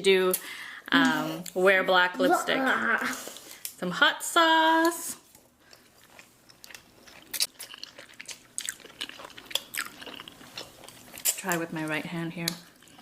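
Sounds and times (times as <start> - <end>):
chewing noodles: 5.3 - 11.6.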